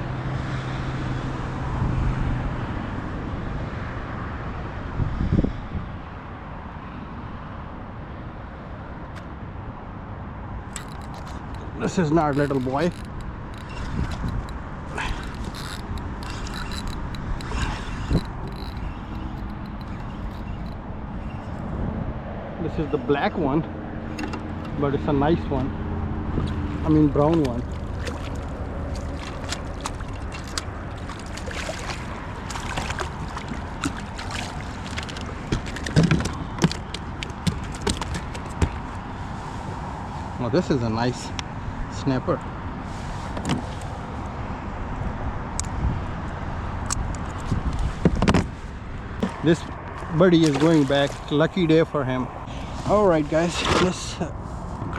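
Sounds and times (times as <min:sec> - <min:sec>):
wind rumble on microphone: 0:00.0 - 0:09.0, 0:10.6 - 0:54.9
fishing reel ratcheting clicks: 0:10.8 - 0:21.4
water sloshing against kayak hull: 0:10.8 - 0:21.7, 0:26.4 - 0:39.0, 0:48.0 - 0:51.4.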